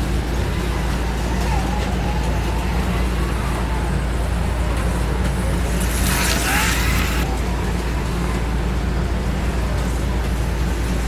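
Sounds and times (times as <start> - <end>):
slot car whirring past: 0.0 - 8.4.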